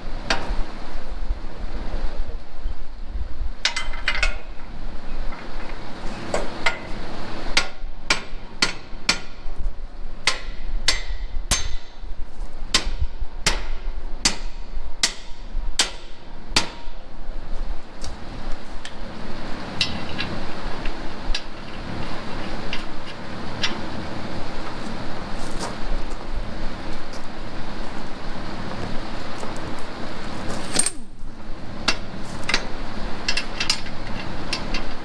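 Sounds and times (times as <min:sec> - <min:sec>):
hammer striking metal: 0:07.6 - 0:09.4, 0:10.2 - 0:12.0, 0:12.7 - 0:17.0.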